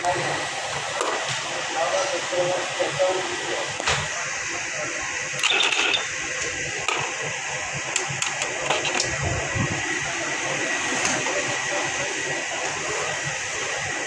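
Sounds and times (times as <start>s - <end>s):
sharp clicks and rattles: 5.4s - 6.1s
copier mechanism whirring: 5.4s - 10.0s.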